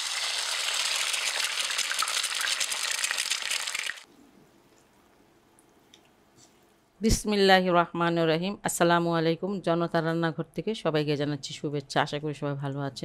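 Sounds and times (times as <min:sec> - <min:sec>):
food frying in a pan: 0:00.0 - 0:04.1.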